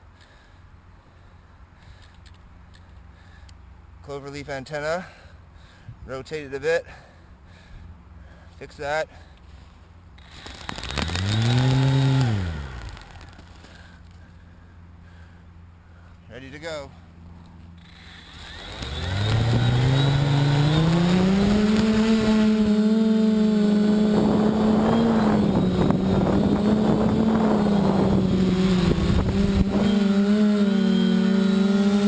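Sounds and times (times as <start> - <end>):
drone motors humming: 10.2 - 14.5, 17.2 - 32.0
rushing wind: 24.0 - 30.2.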